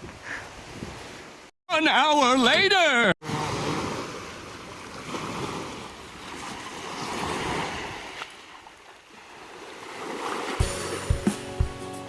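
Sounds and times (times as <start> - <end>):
sea waves washing in: 3.2 - 11.9.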